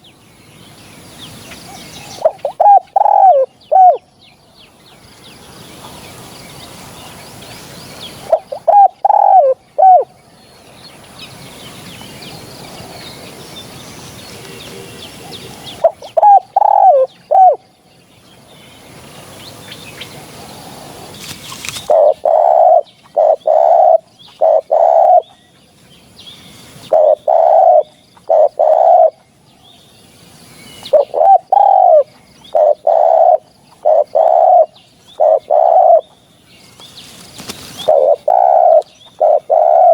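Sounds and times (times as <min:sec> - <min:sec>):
faint bird chirping: 0:00.0 - 0:39.9
dove cooing: 0:01.8 - 0:04.0, 0:08.2 - 0:10.1, 0:14.3 - 0:17.6, 0:21.7 - 0:25.3, 0:26.9 - 0:29.2, 0:30.8 - 0:36.1, 0:37.4 - 0:39.9.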